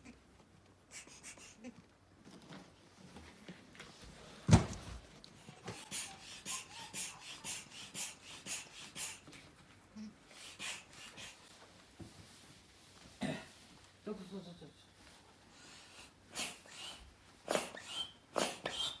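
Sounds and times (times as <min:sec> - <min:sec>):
air pump inflating a ball: 0:00.9 - 0:01.6, 0:05.4 - 0:09.5, 0:10.3 - 0:11.6, 0:15.6 - 0:19.0.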